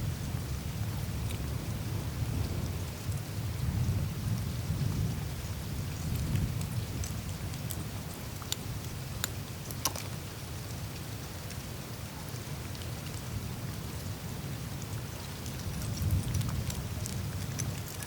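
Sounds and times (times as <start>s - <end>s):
low rumble of meltwater: 0.0s - 18.0s
ice clicks and ticks: 6.1s - 10.2s, 15.3s - 18.0s.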